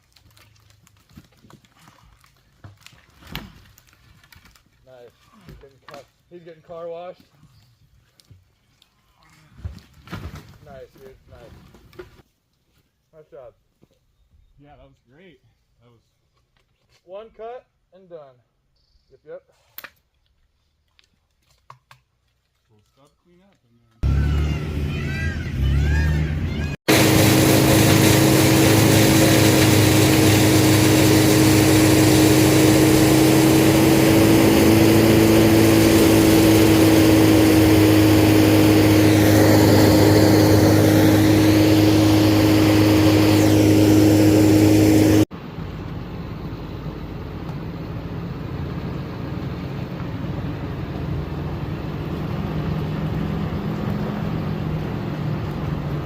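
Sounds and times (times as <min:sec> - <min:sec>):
heavy machinery humming: 0:24.0 - 0:49.8
engine running: 0:24.0 - 0:56.0.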